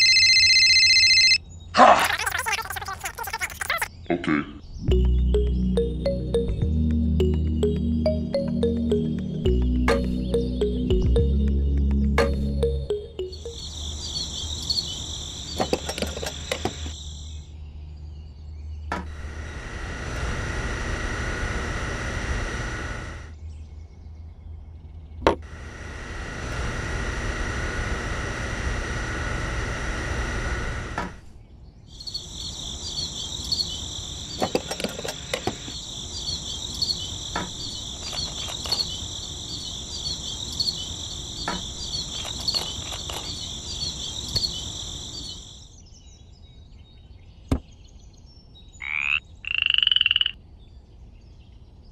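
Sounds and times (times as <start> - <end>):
crickets chirping: 13.0 - 17.5, 31.9 - 45.8
small parts clicking: 38.0 - 38.9.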